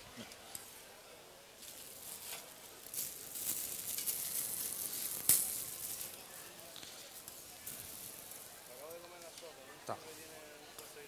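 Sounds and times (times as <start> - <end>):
food sizzling in a pan: 1.7 - 9.3.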